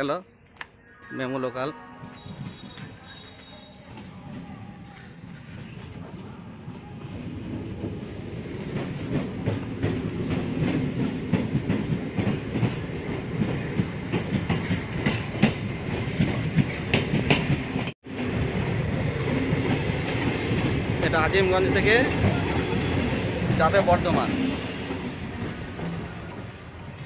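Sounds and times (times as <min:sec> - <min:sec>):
train wheels clattering: 0:07.7 - 0:17.9.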